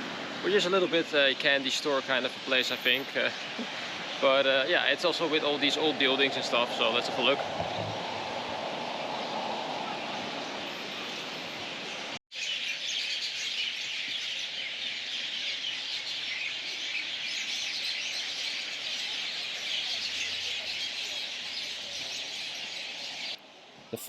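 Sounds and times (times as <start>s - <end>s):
small birds chirping: 11.5s - 23.4s.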